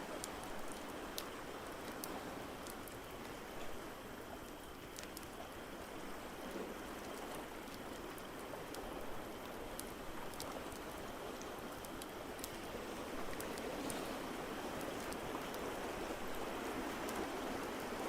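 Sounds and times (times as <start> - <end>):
ocean waves: 5.7 - 18.0.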